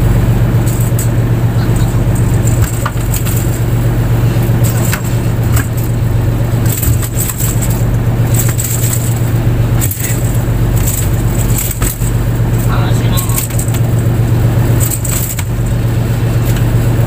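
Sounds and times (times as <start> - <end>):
boat engine humming: 0.0 - 17.0
short knocks and rattles: 1.8 - 15.8.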